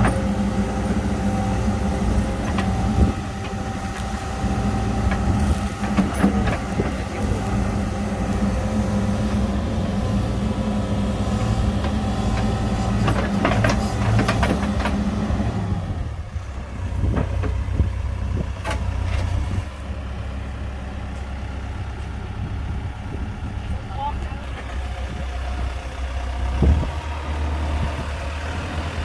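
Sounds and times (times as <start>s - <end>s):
heavy machinery diesel engine: 0.0s - 29.0s
metal clanks and knocks: 5.1s - 7.3s, 11.8s - 15.0s.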